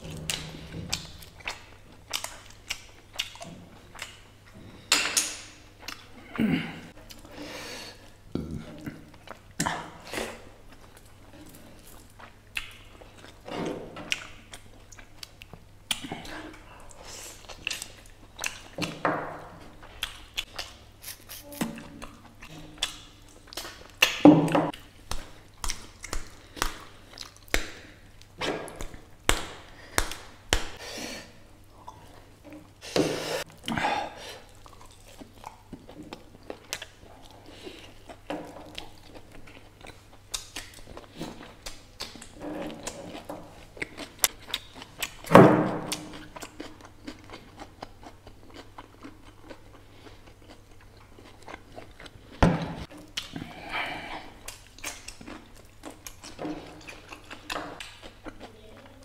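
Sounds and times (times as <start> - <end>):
person chewing food: 0.0 - 59.0
lip smacks: 0.3 - 4.2.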